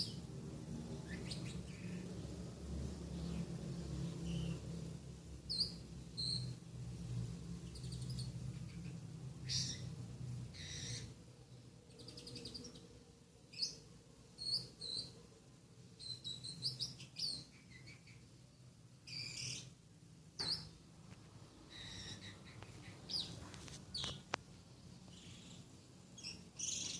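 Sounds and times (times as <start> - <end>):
faint steady hum: 0.0 - 26.9
bird chirping and whistling: 5.5 - 6.5, 20.4 - 20.7, 21.7 - 23.3.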